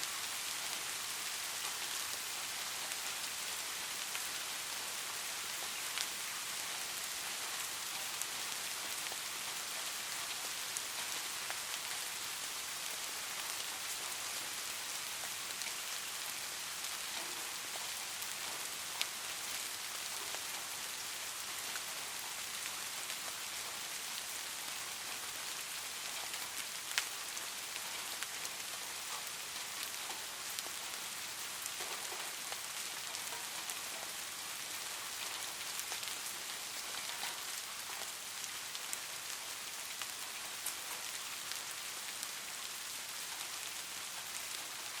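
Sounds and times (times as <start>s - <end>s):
light rain falling: 0.0s - 45.0s.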